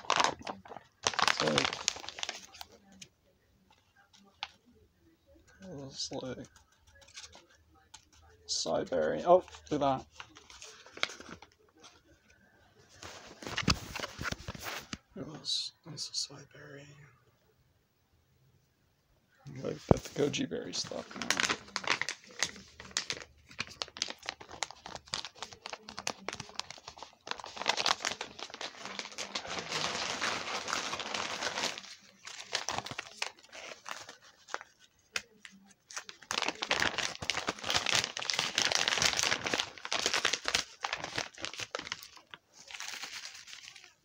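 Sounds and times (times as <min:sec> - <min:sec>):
bag crinkling and rustling: 0:00.0 - 0:02.6, 0:20.0 - 0:35.3, 0:36.0 - 0:44.0.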